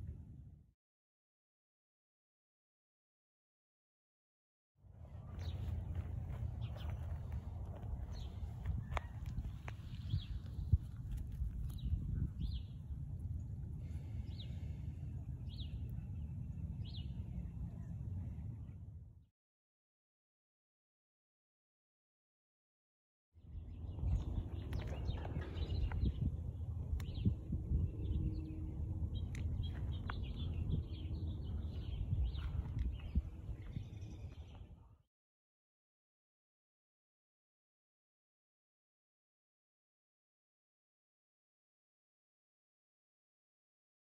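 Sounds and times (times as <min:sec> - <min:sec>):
steady low rumble: 0:04.9 - 0:19.2, 0:23.5 - 0:34.9
songbirds chirping: 0:05.0 - 0:18.2, 0:23.5 - 0:35.0.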